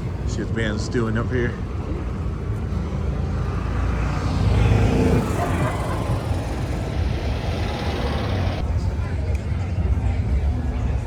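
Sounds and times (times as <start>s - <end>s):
small vehicle rumbling: 0.0s - 9.0s.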